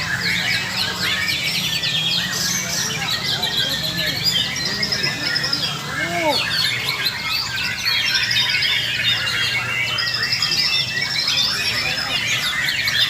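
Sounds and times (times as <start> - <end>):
songbirds whistling and trilling: 0.0 - 13.0.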